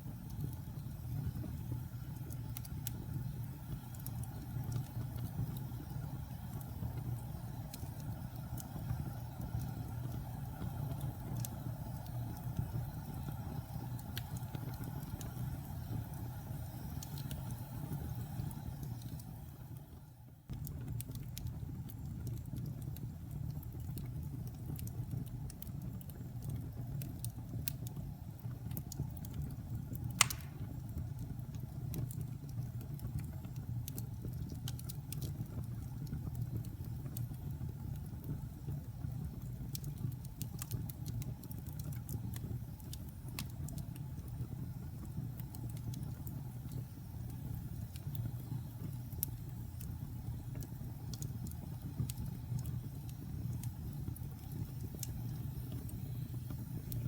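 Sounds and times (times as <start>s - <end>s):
fire flames rumbling: 0.0s - 20.0s, 20.6s - 57.0s
fire crackling: 0.0s - 57.0s
loud fire pop: 30.2s - 30.8s.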